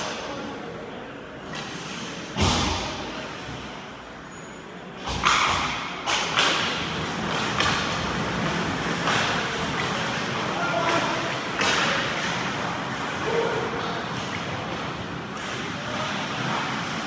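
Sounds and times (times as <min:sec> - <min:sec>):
pucks thudding against rink boards: 0:05.1 - 0:17.0.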